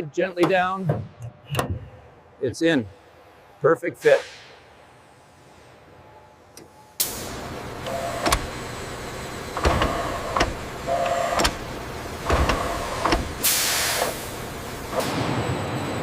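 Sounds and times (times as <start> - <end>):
sharp mechanical clunks: 6.6 - 8.6, 9.5 - 14.2
motorised whirring: 7.6 - 15.0
loud hiss: 13.4 - 15.0.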